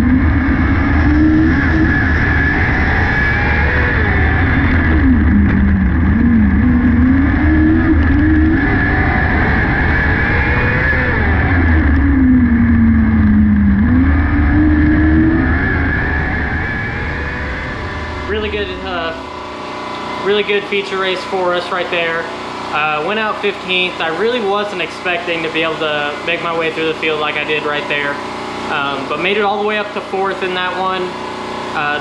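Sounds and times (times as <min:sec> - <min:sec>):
racing car engine running hard: 0:00.0 - 0:32.0.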